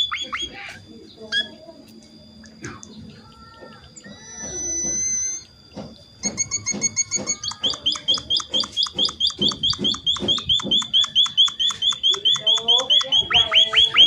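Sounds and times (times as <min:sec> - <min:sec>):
thin high bird whistle: 0:06.2 - 0:14.0
short repeated bird chirps: 0:07.4 - 0:14.0.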